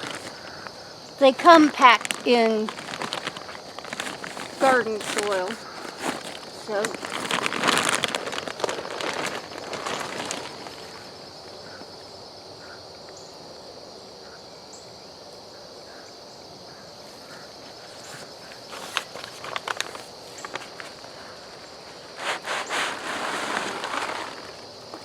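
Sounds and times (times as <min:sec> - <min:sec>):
rustling soil: 0:00.0 - 0:11.8, 0:17.1 - 0:25.0
high-pitched insect trill: 0:00.0 - 0:25.0.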